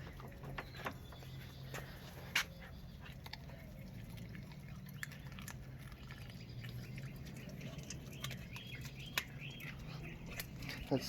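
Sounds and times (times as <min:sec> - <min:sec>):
dogs chewing crunches: 0:00.0 - 0:11.0
bird chirps: 0:00.4 - 0:03.3, 0:06.0 - 0:11.0.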